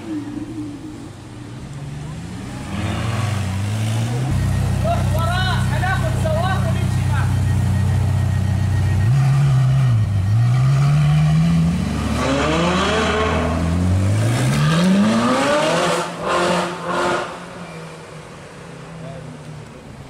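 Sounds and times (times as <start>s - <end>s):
car engines accelerating hard: 0.0s - 19.5s.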